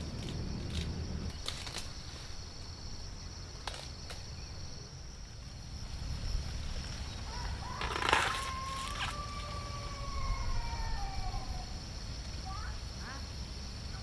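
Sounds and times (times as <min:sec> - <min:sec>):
low rumble: 0:00.0 - 0:01.4
crackling rustle: 0:00.0 - 0:09.9
insect chirring: 0:00.0 - 0:14.0.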